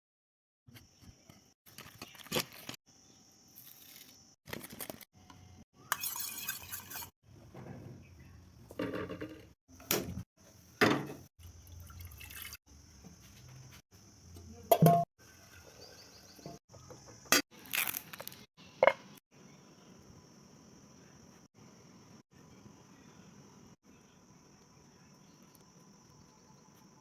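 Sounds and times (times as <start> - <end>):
liquid pouring and dripping: 11.4 - 12.6.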